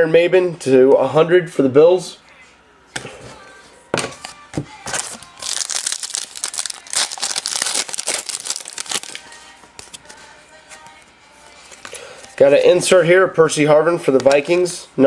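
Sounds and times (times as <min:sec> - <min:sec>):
cards rustling: 0:04.2 - 0:12.8
wrapper tearing and crinkling: 0:05.0 - 0:10.2.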